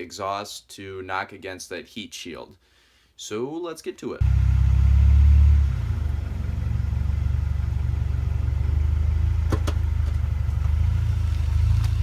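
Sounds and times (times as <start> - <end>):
car engine running at low revs: 4.2 - 12.0.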